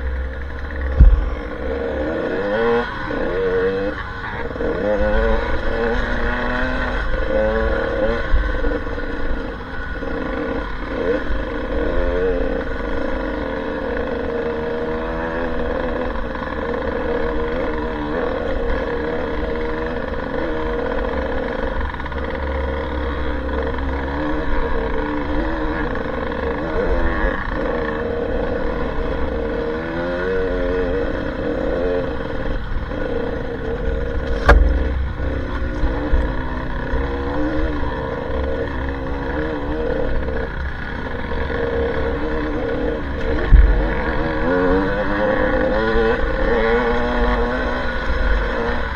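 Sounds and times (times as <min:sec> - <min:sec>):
motorcycle engine running: 0:00.0 - 0:48.9
sharp knock: 0:00.9 - 0:01.6, 0:34.2 - 0:35.2.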